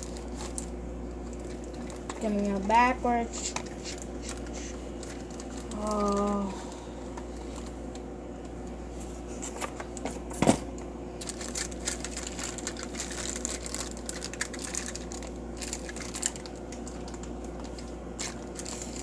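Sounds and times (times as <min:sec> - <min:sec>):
packaging rustling and crinkling: 0:00.0 - 0:02.7, 0:03.4 - 0:07.8, 0:11.2 - 0:19.0.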